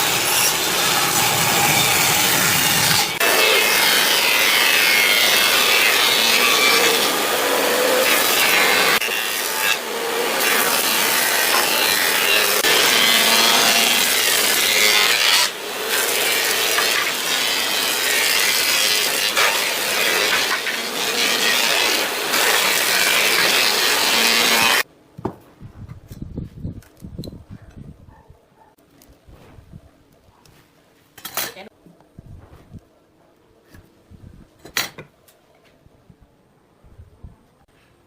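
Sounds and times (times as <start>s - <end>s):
tool sawing wood: 0.0s - 24.8s.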